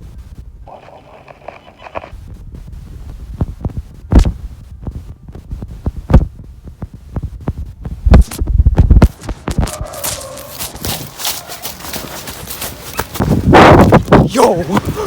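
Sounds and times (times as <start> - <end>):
low thumps and knocks: 2.2 - 9.8.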